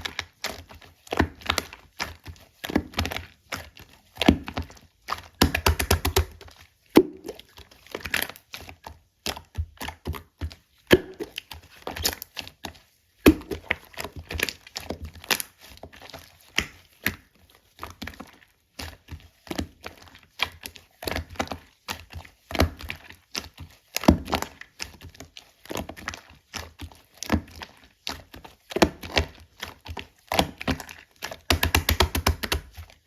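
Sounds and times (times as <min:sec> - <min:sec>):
sticky slime clicks and pops: 0:05.4 - 0:06.4, 0:13.3 - 0:13.7, 0:31.5 - 0:32.7.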